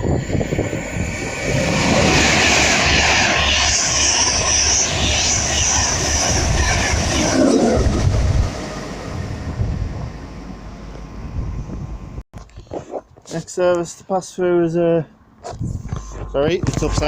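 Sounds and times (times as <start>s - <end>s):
express train passing at speed: 0.0s - 12.2s.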